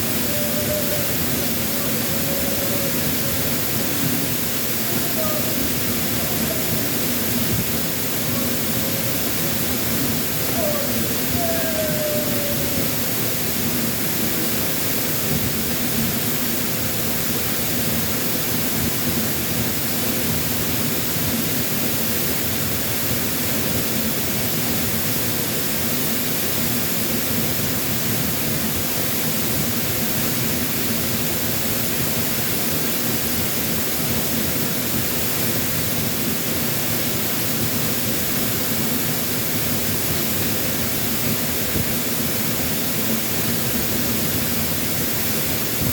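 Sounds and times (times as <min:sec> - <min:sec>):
waterfall rushing: 0:00.0 - 0:13.5.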